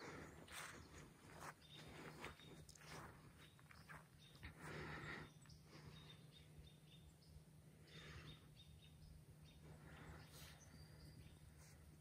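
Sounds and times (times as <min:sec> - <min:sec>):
faint bird chirps: 0:05.2 - 0:12.0.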